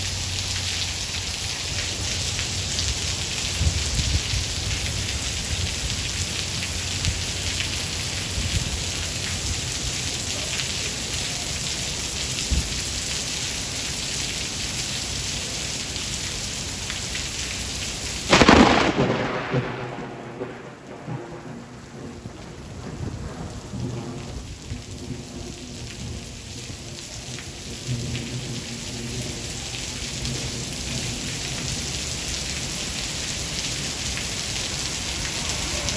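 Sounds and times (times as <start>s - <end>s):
heavy rain: 0.0s - 35.9s
rolling thunder: 3.2s - 9.2s, 18.3s - 26.9s
sharp thunderclap: 18.3s - 25.3s.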